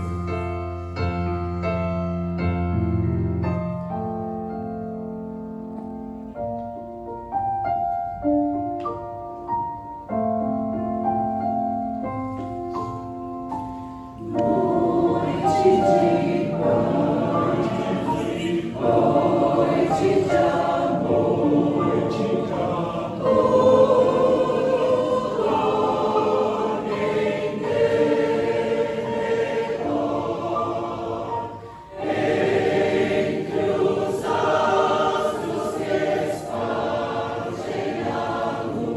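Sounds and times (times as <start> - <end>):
church choir singing a carol: 0.0 - 0.2, 14.2 - 38.9.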